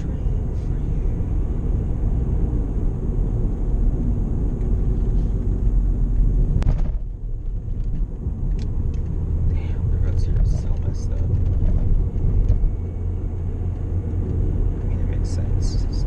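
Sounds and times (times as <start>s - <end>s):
tyres rumbling over rough pavement: 3.1s - 15.2s.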